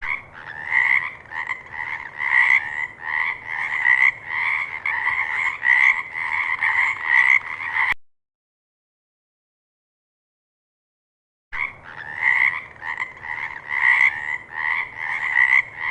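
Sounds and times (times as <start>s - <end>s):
frog croaking: 0.0s - 8.0s, 11.6s - 15.9s.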